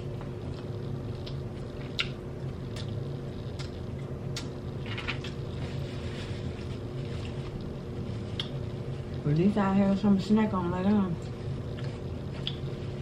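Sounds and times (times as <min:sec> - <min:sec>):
chewing and mouth clicks: 0:00.2 - 0:05.4, 0:08.3 - 0:08.7, 0:11.2 - 0:12.7.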